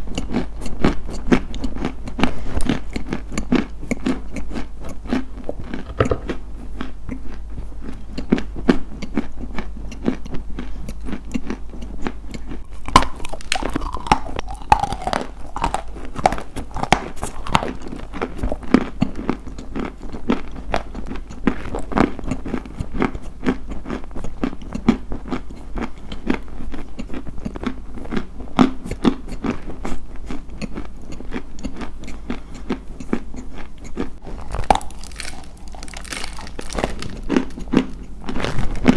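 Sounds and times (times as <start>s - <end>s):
crunching and chewing: 0.0s - 38.9s.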